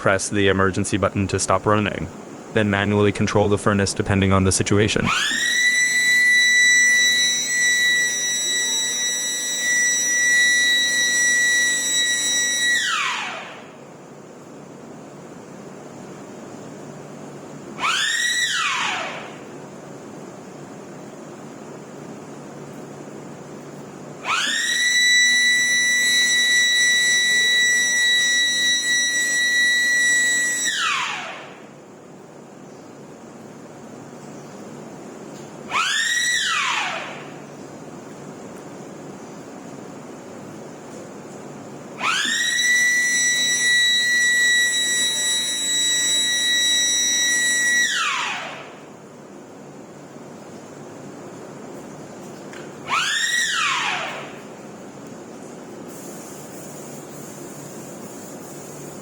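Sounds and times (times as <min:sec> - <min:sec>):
high-pitched whine winding down: 0:00.0 - 0:13.8, 0:17.8 - 0:19.5, 0:24.2 - 0:31.8, 0:35.7 - 0:37.5, 0:42.0 - 0:48.9, 0:52.8 - 0:54.5
low machine hum: 0:00.0 - 0:17.8
electric alarm siren: 0:05.0 - 0:13.8, 0:17.8 - 0:19.5, 0:24.2 - 0:31.8, 0:35.7 - 0:37.5, 0:42.0 - 0:48.9, 0:52.8 - 0:54.5
faint hiss: 0:54.5 - 0:59.0.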